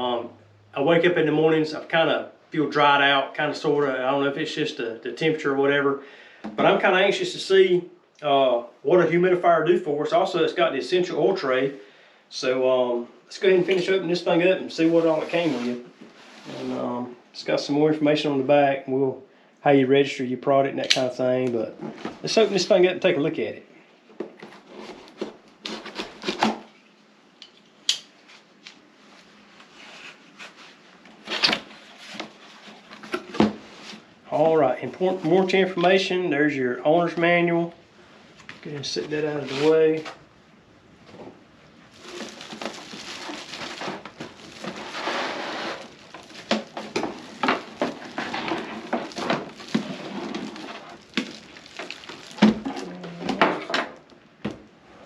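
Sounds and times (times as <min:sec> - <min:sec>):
cardboard box rustling and scraping: 0:42.0 - 0:52.8.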